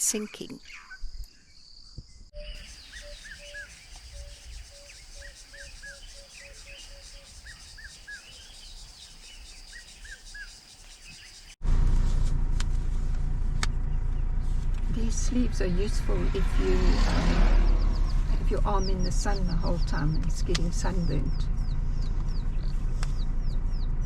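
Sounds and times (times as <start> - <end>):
bird calling low notes: 2.4 - 11.6
high insect whine: 2.4 - 11.6
loud low rumble: 11.6 - 24.0.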